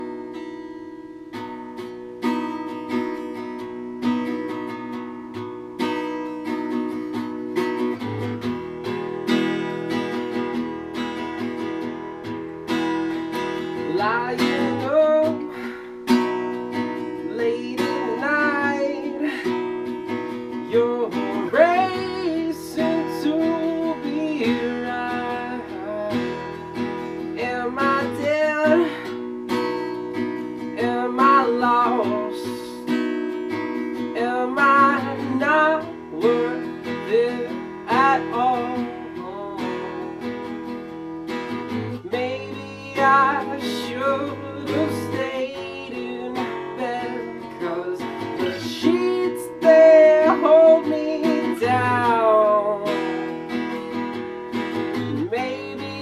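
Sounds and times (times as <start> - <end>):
acoustic guitar strumming: 0.0 - 56.0
man singing: 13.3 - 40.8, 41.5 - 56.0.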